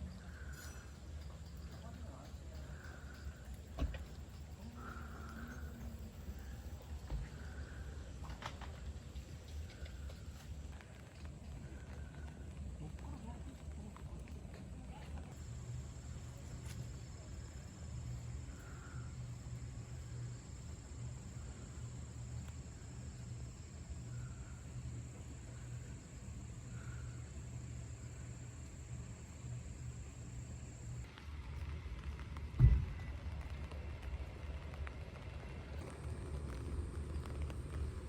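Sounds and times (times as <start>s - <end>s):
low steady rumble: 0.0s - 38.0s
faint calls: 4.6s - 8.1s.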